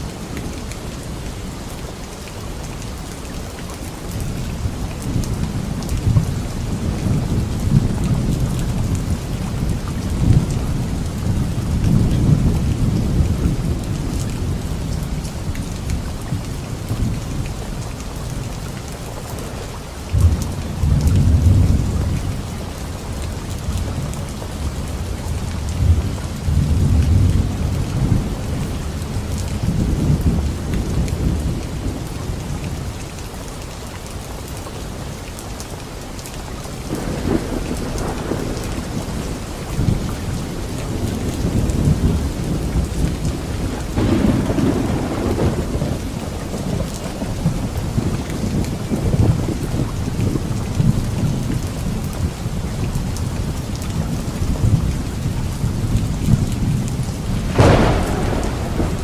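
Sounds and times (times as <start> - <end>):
rain falling on leaves: 0.0 - 59.0
thunder rumbling: 36.9 - 52.1, 54.0 - 59.0.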